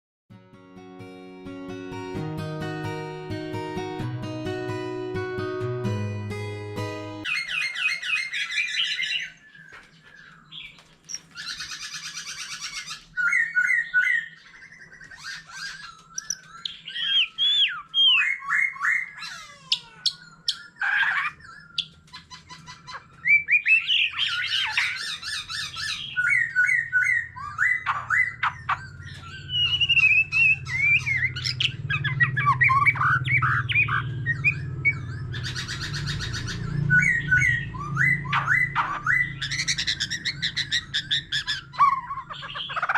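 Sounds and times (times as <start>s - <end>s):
bird singing: 7.2s - 42.9s.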